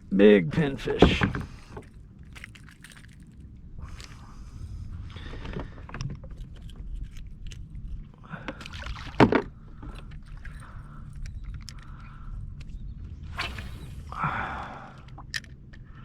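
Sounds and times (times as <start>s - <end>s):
steady low rumble: 0.0s - 16.0s
clicks and knocks in kayak: 5.2s - 12.8s.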